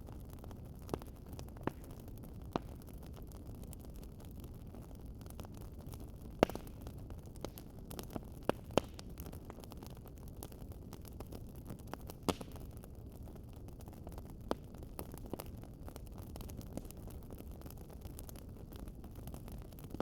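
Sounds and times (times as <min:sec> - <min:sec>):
low rumble of flames: 0:00.0 - 0:20.0
wood fire crackling and popping: 0:00.0 - 0:20.0.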